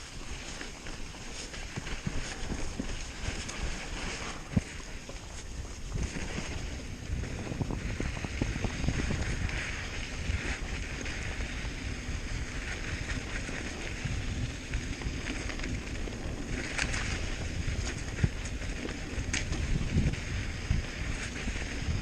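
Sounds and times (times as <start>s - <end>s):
bike tyres on dirt: 0.0s - 22.0s
wind buffeting microphone: 0.0s - 22.0s.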